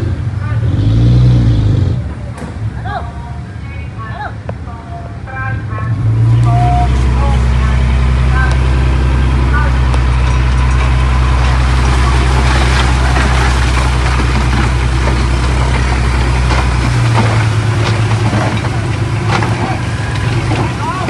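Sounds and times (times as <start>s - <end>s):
heavy diesel machinery running: 0.0s - 21.0s
rocks knocking and clattering: 9.9s - 21.0s.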